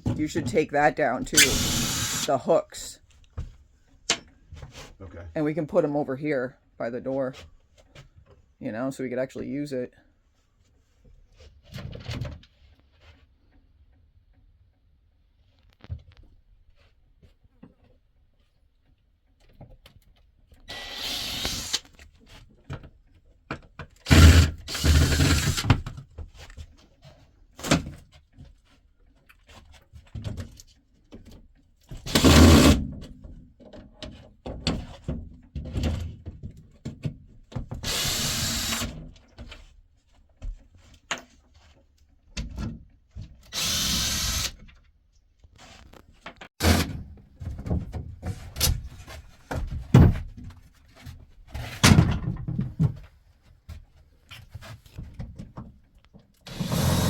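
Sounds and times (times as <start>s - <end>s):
power drill running: 1.4s - 2.3s, 20.7s - 21.8s, 24.1s - 25.7s, 32.1s - 32.8s, 37.8s - 38.9s, 43.5s - 44.5s, 56.5s - 57.0s.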